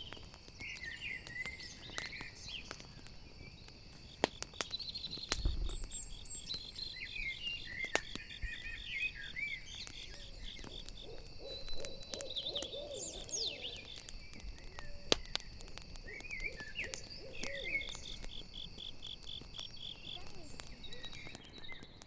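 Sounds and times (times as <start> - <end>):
campfire crackling: 0.0 - 22.0
crickets chirping: 0.0 - 22.0
owl hooting: 10.1 - 14.0, 16.0 - 18.3.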